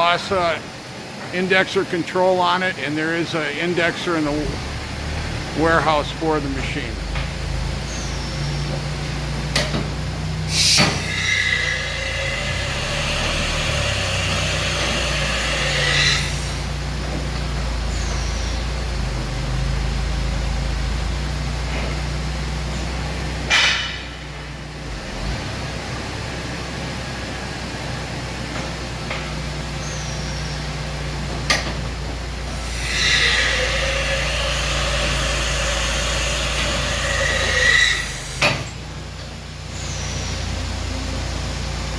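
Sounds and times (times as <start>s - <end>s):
low machine hum: 0.0s - 41.9s
machining center whine with hiss: 0.0s - 41.9s
machine low hum: 3.3s - 10.6s
compressed air hiss: 10.5s - 12.2s
sharp clunk: 23.5s - 24.2s.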